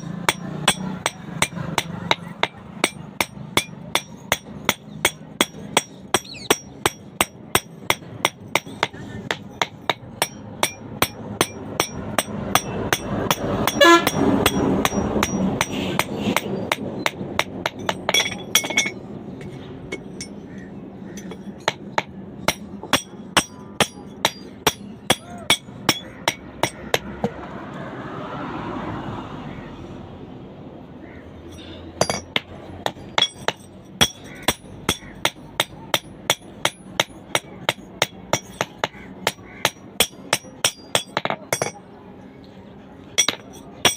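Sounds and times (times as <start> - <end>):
hammer ringing on anvil: 21.2 - 26.8, 33.1 - 41.8.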